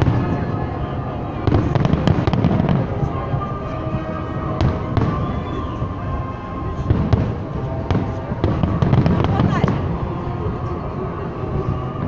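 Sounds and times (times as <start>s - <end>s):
fireworks exploding: 0.0s - 0.4s, 1.3s - 5.9s, 6.8s - 10.0s.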